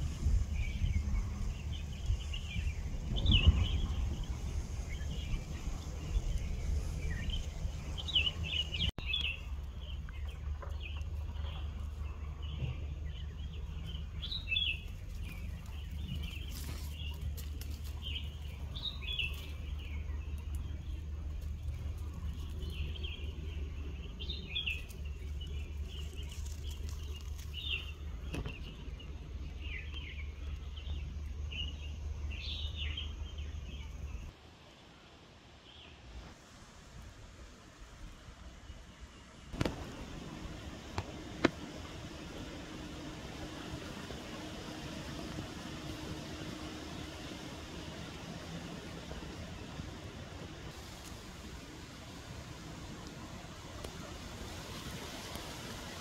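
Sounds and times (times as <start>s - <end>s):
steady low rumble: 0.0s - 34.3s, 36.6s - 56.0s
small birds chirping: 0.0s - 34.4s.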